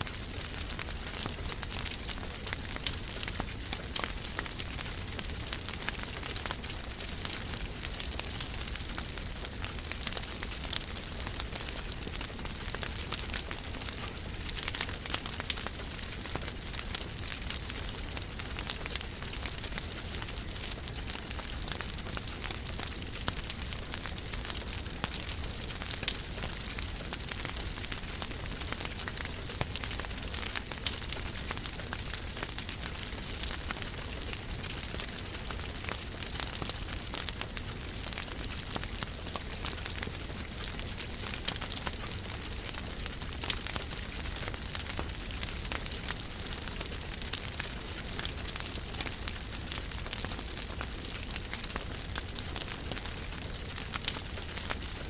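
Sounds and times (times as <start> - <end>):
fire crackling in a fireplace: 0.0 - 55.0.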